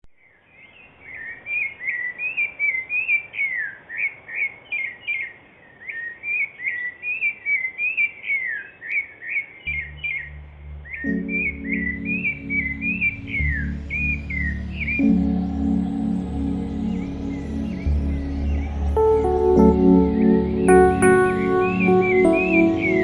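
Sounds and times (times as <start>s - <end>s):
songbird chirping: 0.2s - 23.0s
low meditation music tone: 9.7s - 23.0s.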